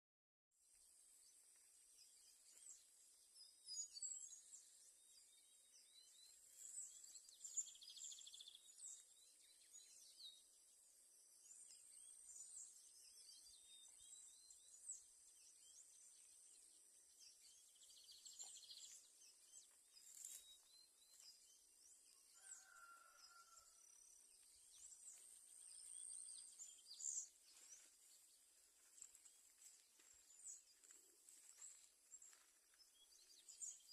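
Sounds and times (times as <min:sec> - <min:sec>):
birds chirping: 0:11.4 - 0:33.9
lower fuller bird call: 0:22.4 - 0:23.8.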